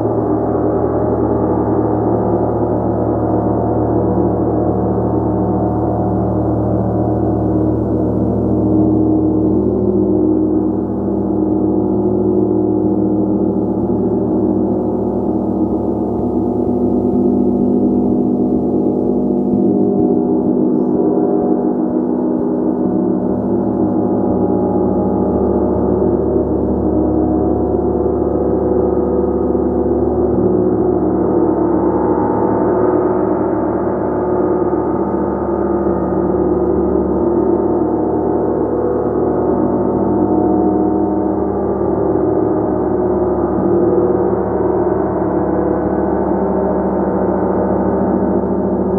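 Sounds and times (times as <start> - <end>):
shimmering gong tones: 6.0 - 29.5.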